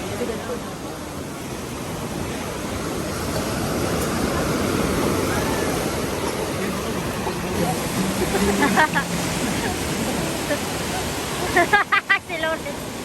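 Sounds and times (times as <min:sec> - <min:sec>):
ocean wave breaking: 0:00.0 - 0:13.0.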